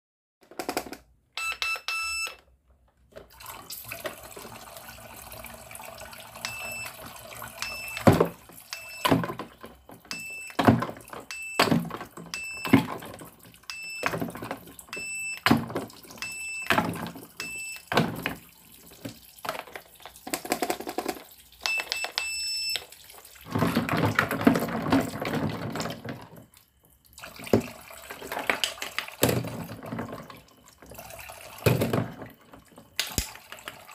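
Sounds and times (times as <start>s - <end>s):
toy cash register beeps: 1.4s - 2.5s, 6.4s - 18.1s, 20.6s - 22.9s
plastic toys clacking: 19.5s - 22.2s.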